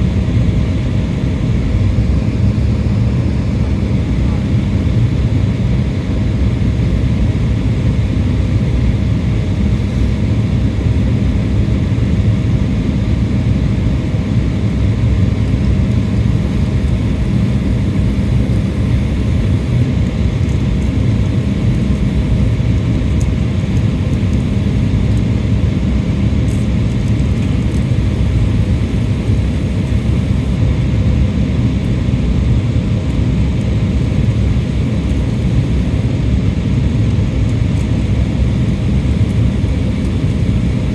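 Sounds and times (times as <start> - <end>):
airliner cabin engine rumble: 0.0 - 40.9
faint steady hum: 0.0 - 40.9.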